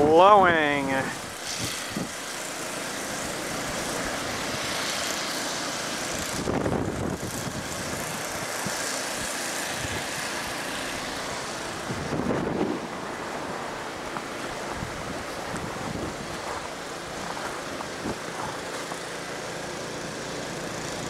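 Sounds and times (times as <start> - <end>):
wind blowing across microphone: 0.0 - 2.2, 6.1 - 10.4, 11.4 - 18.7.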